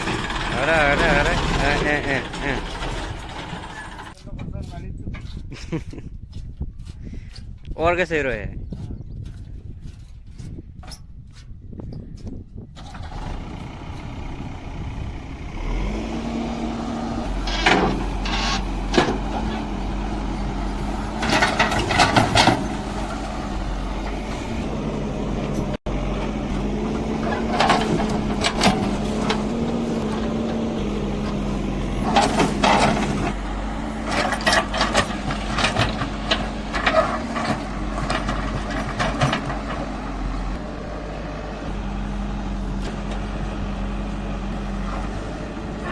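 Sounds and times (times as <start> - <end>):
knocks and rattles: 0.0 - 6.4, 16.6 - 40.9
tractor diesel engine running: 0.0 - 7.5, 12.6 - 45.9.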